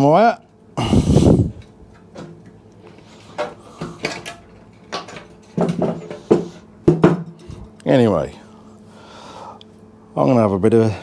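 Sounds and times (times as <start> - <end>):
metal parts knocking and clinking: 3.4 - 7.6.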